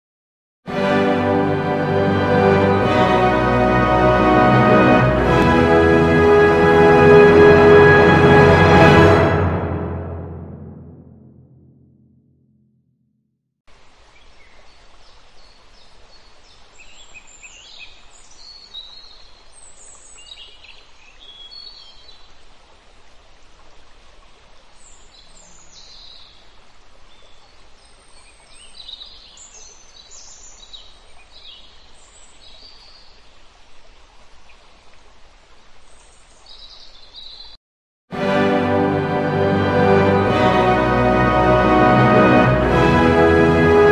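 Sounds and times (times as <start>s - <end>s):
music: 0.7s - 12.6s, 38.1s - 43.9s
background hiss: 13.7s - 37.4s
small birds chirping: 35.9s - 37.6s.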